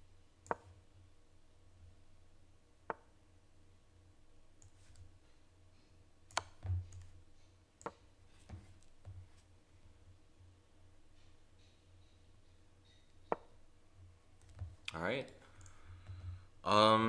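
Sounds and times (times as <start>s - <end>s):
sharp mouse clicks: 0.4s - 0.8s, 6.3s - 9.2s.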